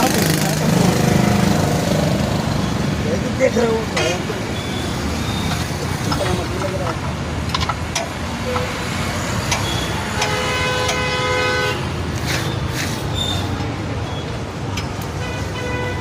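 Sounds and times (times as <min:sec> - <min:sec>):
engine and road rumble: 0:00.0 - 0:16.0
vehicle horn: 0:09.7 - 0:12.0, 0:15.2 - 0:16.0.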